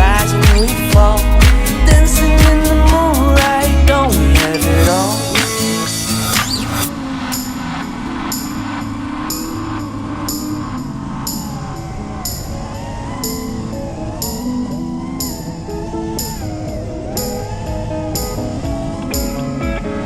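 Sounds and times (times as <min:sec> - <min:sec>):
drum beat: 0:00.0 - 0:06.8
gliding melody: 0:00.0 - 0:20.0.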